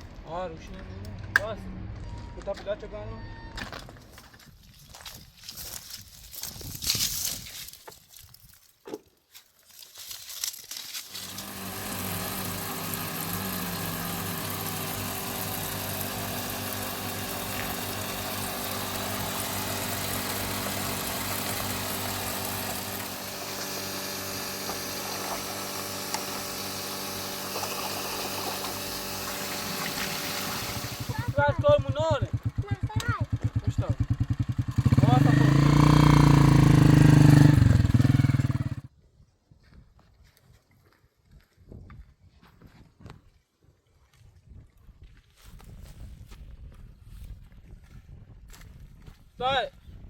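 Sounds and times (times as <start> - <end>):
engine running steadily: 11.1 - 38.9.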